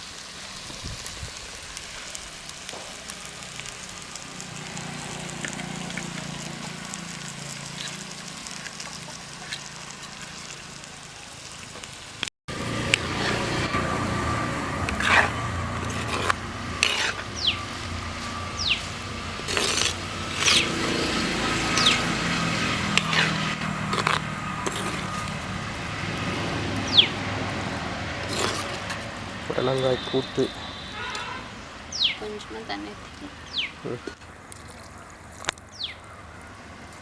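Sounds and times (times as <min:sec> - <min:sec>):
curry sizzling in a pan: 0:00.0 - 0:31.0
spoon scraping and clinking pan: 0:14.9 - 0:17.3, 0:22.9 - 0:25.1.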